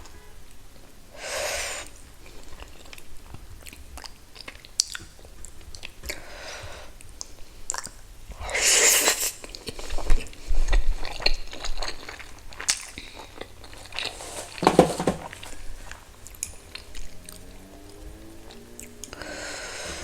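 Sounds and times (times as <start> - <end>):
person chewing: 9.0 - 14.2.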